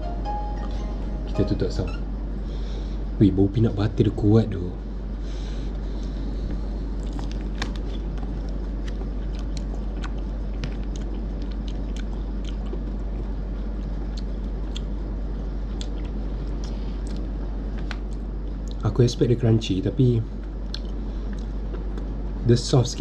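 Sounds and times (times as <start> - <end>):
low hum: 0.0 - 23.0
biting and chewing ice cream bar: 6.8 - 18.8, 20.6 - 22.2.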